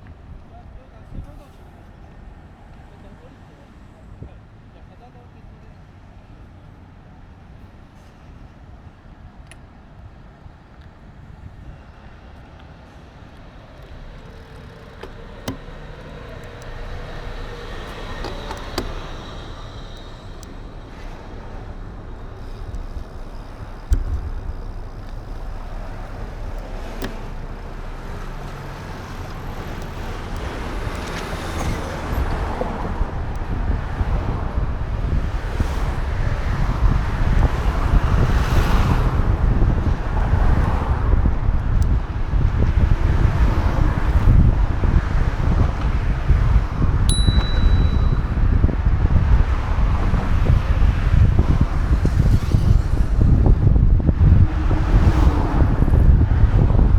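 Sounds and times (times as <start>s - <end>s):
road noise: 0.0s - 56.9s
wind rumbling on microphone: 10.4s - 56.9s
sharp clicks: 13.4s - 21.0s.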